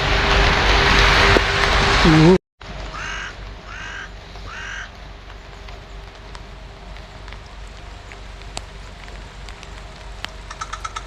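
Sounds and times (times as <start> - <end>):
rain hiss: 0.0 - 11.0
crow cawing: 2.9 - 5.0
water drips ticking: 4.4 - 11.0.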